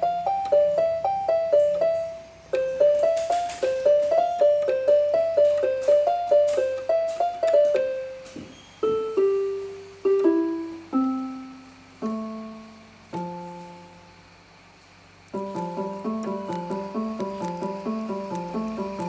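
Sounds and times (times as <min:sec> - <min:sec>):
electronic keyboard piano melody: 0:00.0 - 0:14.3, 0:15.3 - 0:19.0.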